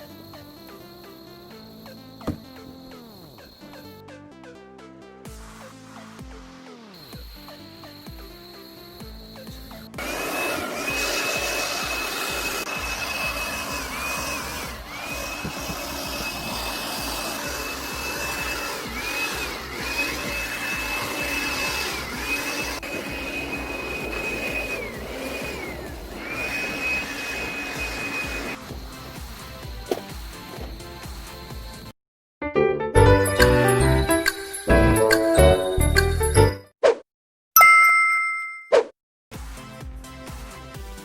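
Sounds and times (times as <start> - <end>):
high-speed electric motor whine: 7.0 - 31.9.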